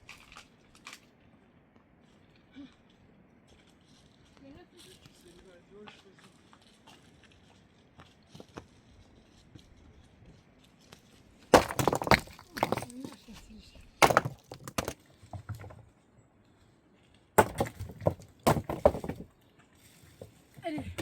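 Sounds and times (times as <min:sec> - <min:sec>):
sharp knocks and cracks: 0:11.5 - 0:13.2, 0:14.0 - 0:15.8, 0:17.4 - 0:19.3.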